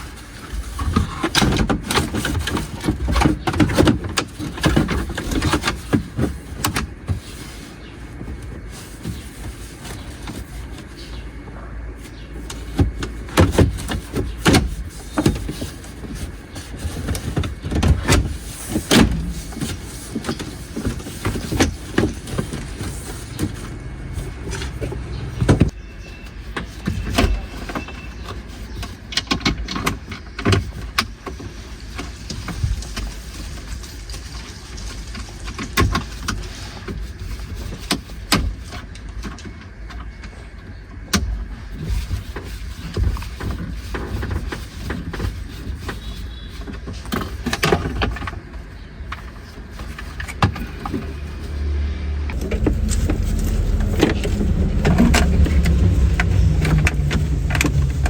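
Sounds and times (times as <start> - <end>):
knocks and clicks of car work: 12.2 - 25.8, 35.2 - 51.5, 52.3 - 58.0
car engine running: 49.1 - 58.0
low rumble: 51.1 - 58.0.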